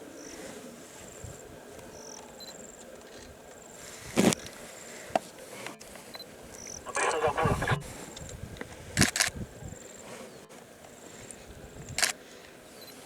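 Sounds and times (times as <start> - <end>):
loud sharp noise: 6.9 - 7.9.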